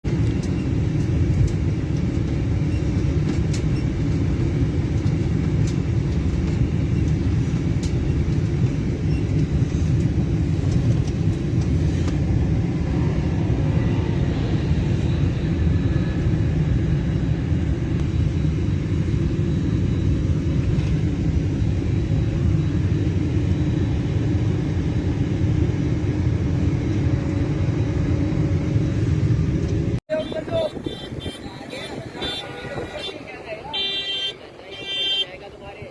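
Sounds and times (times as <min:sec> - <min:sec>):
jet engines low rumble: 0:00.0 - 0:35.9.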